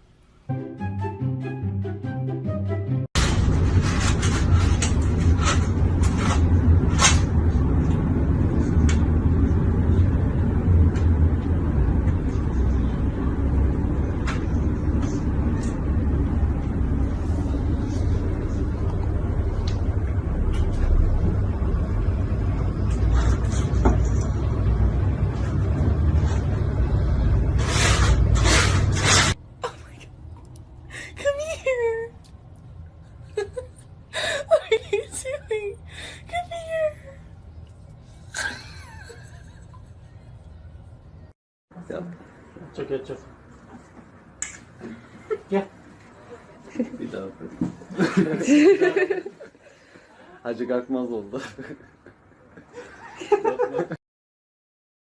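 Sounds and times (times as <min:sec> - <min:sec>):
low rumble: 0:03.2 - 0:31.2.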